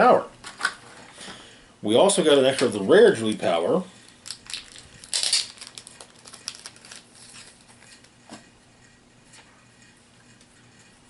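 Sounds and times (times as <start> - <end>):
plastic packaging crinkling: 4.0 - 8.2.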